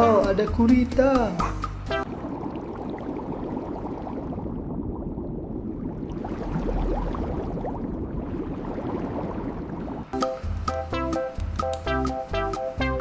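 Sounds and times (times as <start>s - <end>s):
plastic crackling: 9.9s - 12.9s.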